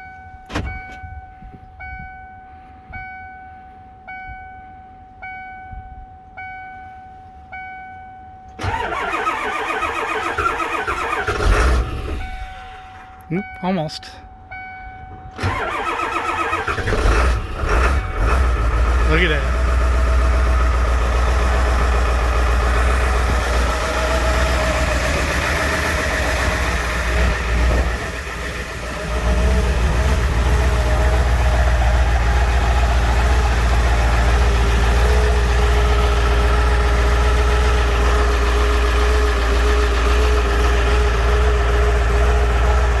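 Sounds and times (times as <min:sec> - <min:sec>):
diesel engine idling: 0:08.6 - 0:13.2, 0:15.4 - 0:43.0.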